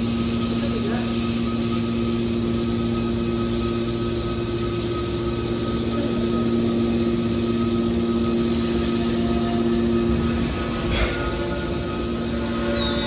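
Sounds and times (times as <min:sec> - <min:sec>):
hydraulic machine humming: 0:00.0 - 0:13.0.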